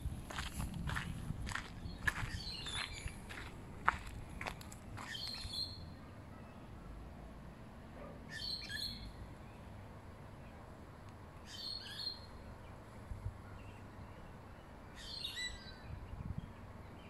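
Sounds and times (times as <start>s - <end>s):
low outdoor rumble: 0.0s - 8.2s
birds chirping: 0.9s - 6.7s.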